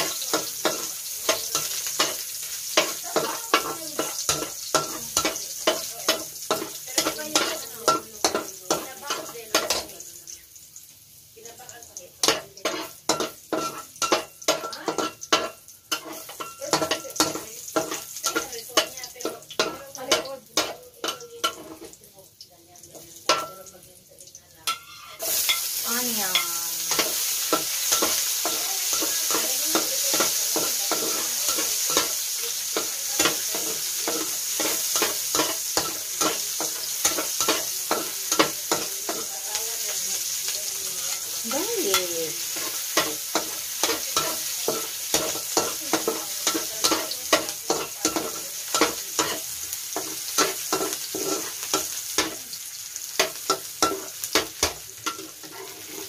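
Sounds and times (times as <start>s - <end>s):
food sizzling in hot oil: 0.0s - 56.0s
metal spatula scraping a wok: 12.2s - 22.0s, 24.7s - 56.0s.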